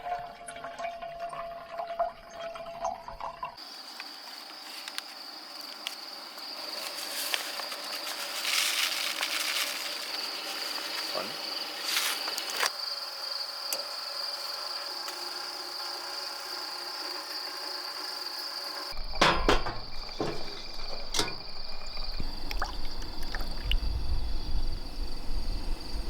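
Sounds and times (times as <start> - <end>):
rustling: 6.6 - 11.1
short knocks: 19.0 - 22.8.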